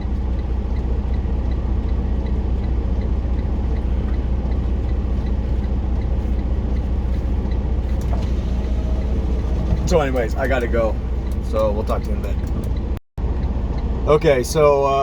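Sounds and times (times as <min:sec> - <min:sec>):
diesel truck engine idling: 0:00.0 - 0:15.0
faint regular ticking: 0:09.9 - 0:13.0.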